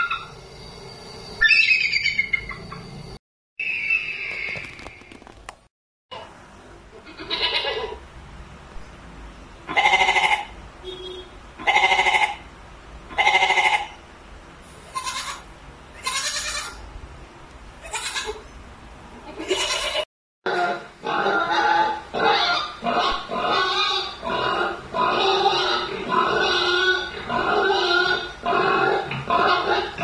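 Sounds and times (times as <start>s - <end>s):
goats bleating: 7.1s - 8.0s, 9.7s - 10.5s, 16.0s - 16.8s, 19.3s - 20.0s.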